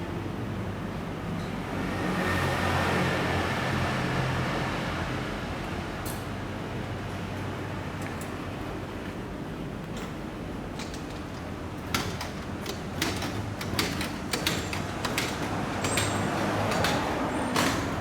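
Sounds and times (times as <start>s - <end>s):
sharp clicks and clatters: 10.8s - 18.0s.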